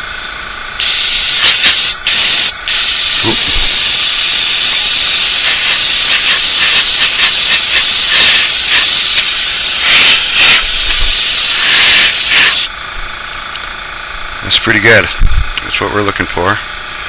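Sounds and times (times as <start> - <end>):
airbrush hissing: 0.8 - 12.7.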